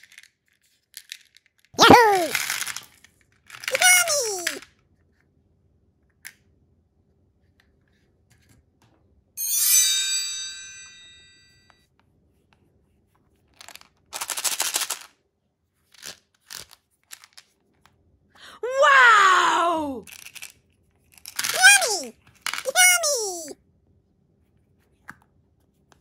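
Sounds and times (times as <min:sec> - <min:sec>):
bright ringing chime: 0:09.4 - 0:11.7.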